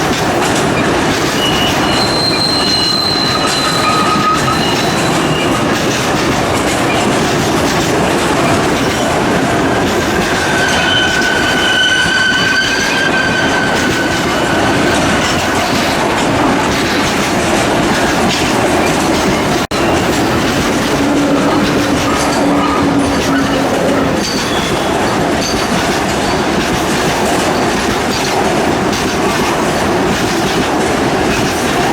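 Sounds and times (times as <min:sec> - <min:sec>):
freight train wheels rumbling: 0:00.0 - 0:31.9
high wheel squeal: 0:01.2 - 0:05.8, 0:07.8 - 0:26.7.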